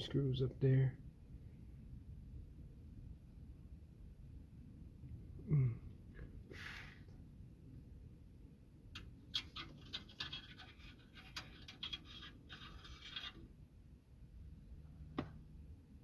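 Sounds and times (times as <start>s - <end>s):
scratching and rasping with clicks: 8.9s - 13.6s.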